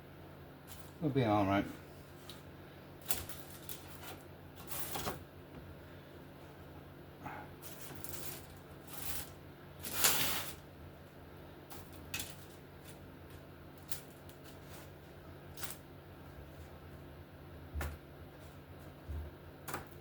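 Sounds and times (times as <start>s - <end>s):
low steady hum: 0.0s - 20.0s
scrape on baking tray: 9.9s - 10.6s.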